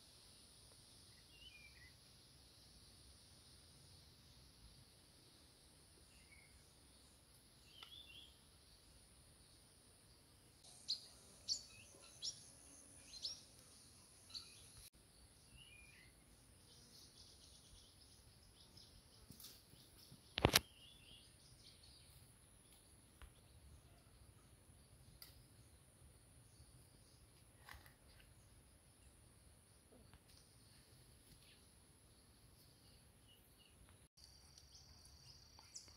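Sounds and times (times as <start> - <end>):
birds chirping: 10.6 - 24.3
sharp click: 20.4 - 20.7.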